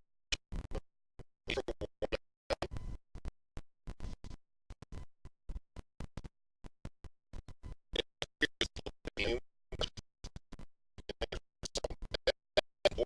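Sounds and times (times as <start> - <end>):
garbled man's voice: 8.0 - 10.0, 11.1 - 13.0.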